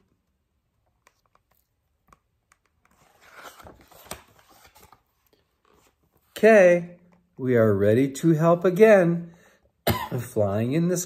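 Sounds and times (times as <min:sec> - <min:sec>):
paper rustling: 0:01.0 - 0:06.4.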